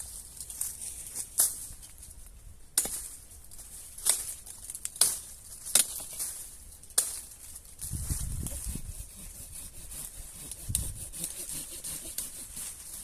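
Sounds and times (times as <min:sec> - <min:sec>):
footsteps crunching dry leaves: 0:02.8 - 0:08.8.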